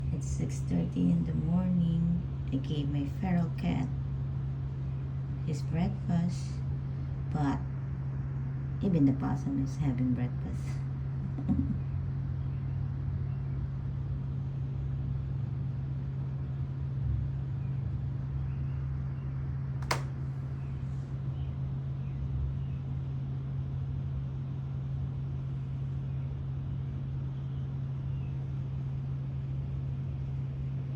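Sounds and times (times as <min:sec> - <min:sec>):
low mechanical hum: 0:00.0 - 0:30.9
sharp click: 0:19.8 - 0:20.2.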